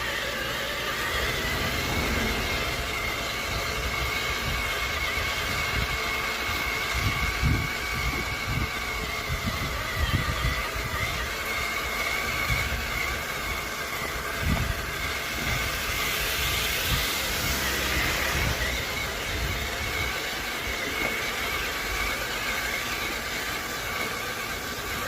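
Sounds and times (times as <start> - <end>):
low rumbling: 0.0 - 11.0
electric motor whining: 0.0 - 25.0
hiss: 0.7 - 2.8, 15.4 - 19.0.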